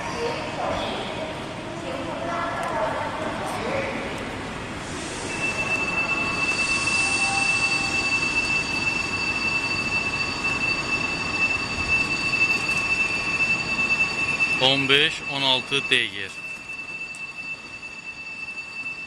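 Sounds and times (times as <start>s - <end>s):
train high-pitched whine: 3.6s - 19.0s
station noise: 4.3s - 19.0s
faint steady tones: 5.0s - 19.0s.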